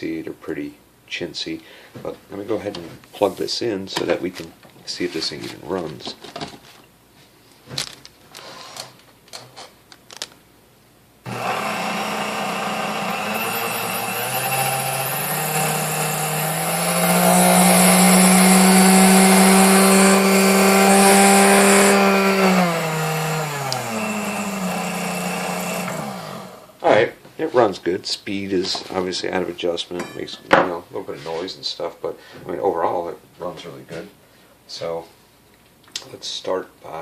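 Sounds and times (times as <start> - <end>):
stand mixer motor whine: 11.3 - 26.7.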